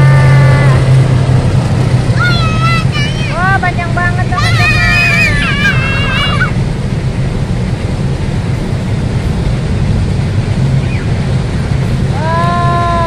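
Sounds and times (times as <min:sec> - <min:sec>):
freight train wagons rumbling: 0:00.0 - 0:13.0
person calling out: 0:12.1 - 0:13.0.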